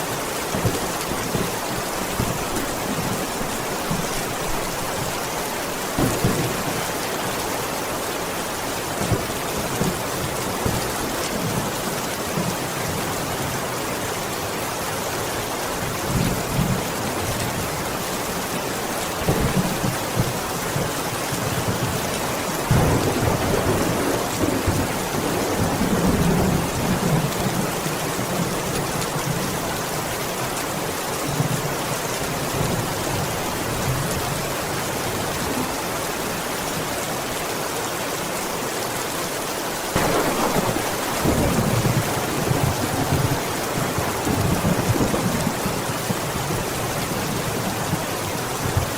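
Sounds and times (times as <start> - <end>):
heavy rain falling: 0.0 - 48.9
low rolling thunder: 6.0 - 7.5, 22.7 - 27.8, 40.0 - 46.7.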